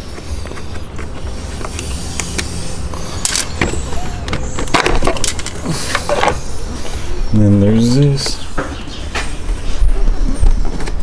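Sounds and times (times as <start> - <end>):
tools clattering on engine parts: 3.2 - 6.4.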